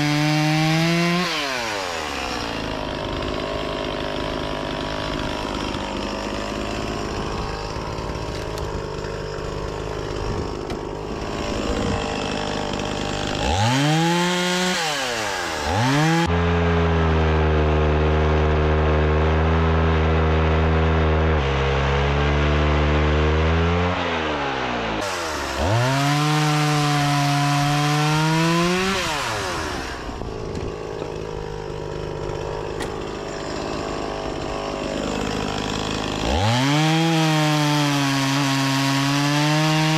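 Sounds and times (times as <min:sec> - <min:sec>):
chainsaw cutting logs: 0:00.0 - 0:39.9
chainsaw idling and revving: 0:00.0 - 0:39.9.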